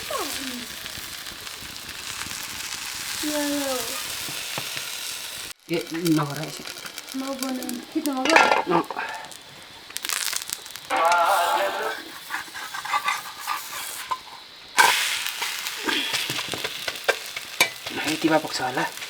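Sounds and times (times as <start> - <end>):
oil sizzling in a pan: 0.0 - 19.0
spoon stirring and knocking pan: 8.1 - 11.4, 12.1 - 19.0.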